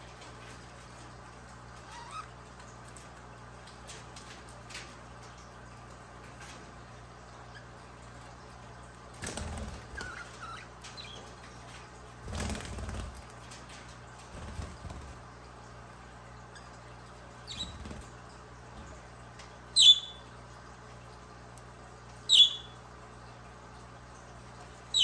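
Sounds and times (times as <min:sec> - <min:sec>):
budgie wings flapping: 0:09.2 - 0:10.5, 0:12.2 - 0:15.3.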